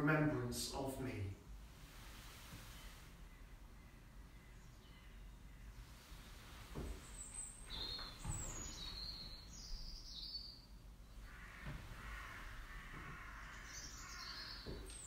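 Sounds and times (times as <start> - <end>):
soft low thuds: 5.9 - 10.0
bird song whistled phrases: 7.2 - 10.6.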